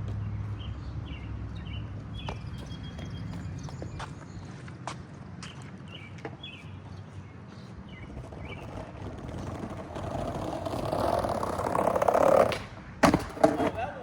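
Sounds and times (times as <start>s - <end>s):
skateboard wheels rolling on pavement: 0.0s - 14.0s.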